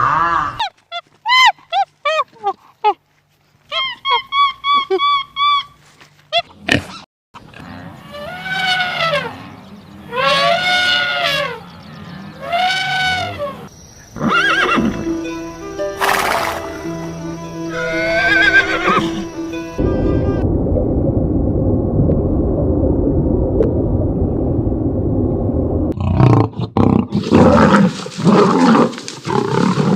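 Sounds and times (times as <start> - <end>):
steady background tone: 13.7 - 26.0
horse whinnying: 14.2 - 15.0, 17.7 - 19.3.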